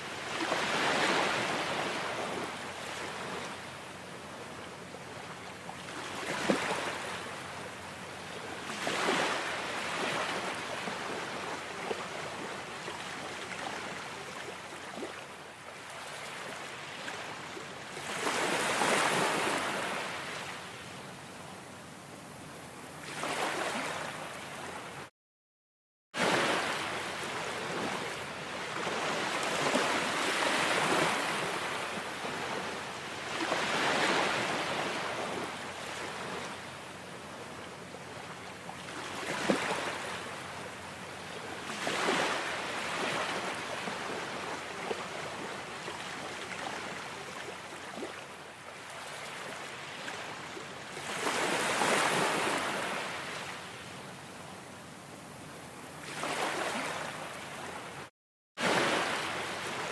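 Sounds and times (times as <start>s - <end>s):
waves breaking: 0.2s - 3.5s, 5.8s - 7.4s, 8.7s - 15.2s, 18.0s - 20.6s, 23.0s - 25.0s, 26.2s - 36.6s, 38.8s - 40.5s, 41.7s - 48.2s, 51.0s - 53.6s, 56.0s - 58.0s, 58.6s - 59.9s.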